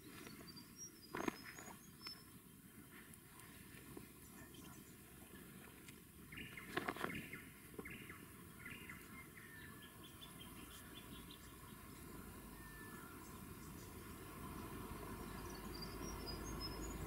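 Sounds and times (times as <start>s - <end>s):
wild birds calling: 0.0s - 17.0s
bird whistle: 12.5s - 13.3s.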